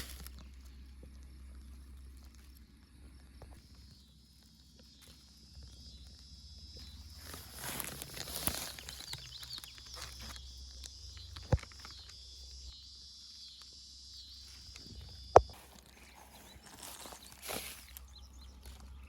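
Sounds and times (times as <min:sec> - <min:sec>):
rustling through brush: 0:00.0 - 0:00.8, 0:03.6 - 0:12.7, 0:14.4 - 0:19.0
footsteps through brush: 0:00.0 - 0:01.4, 0:03.6 - 0:12.7, 0:14.4 - 0:19.0
insects buzzing: 0:00.0 - 0:19.0.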